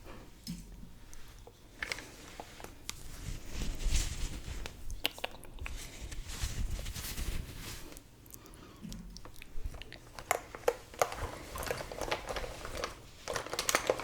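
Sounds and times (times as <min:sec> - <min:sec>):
brush rustling: 0:05.8 - 0:08.0.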